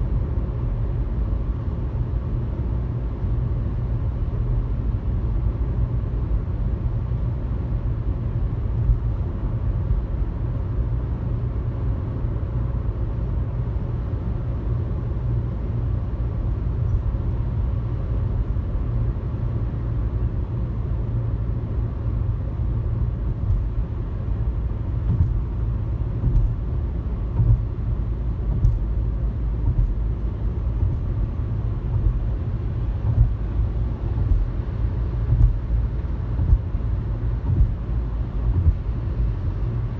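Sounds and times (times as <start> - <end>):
car tyres and engine rumble: 0.0 - 39.9
faint ticks and bumps: 25.0 - 26.7, 27.3 - 27.8, 28.5 - 29.0, 29.6 - 30.2, 30.8 - 31.2, 33.0 - 33.5, 34.1 - 34.7, 35.3 - 37.9, 38.5 - 39.0.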